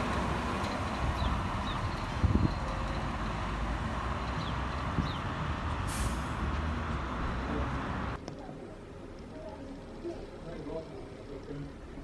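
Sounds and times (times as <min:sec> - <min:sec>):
road traffic: 0:00.0 - 0:08.2
short sharp hiss: 0:05.9 - 0:06.4.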